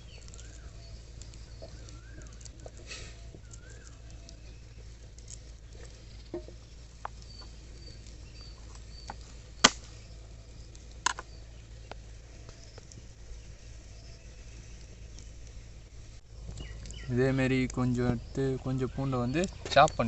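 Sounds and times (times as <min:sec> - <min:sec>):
birds chirping faintly: 0:00.0 - 0:20.0
garlic cloves snapping off bulb: 0:09.6 - 0:09.9.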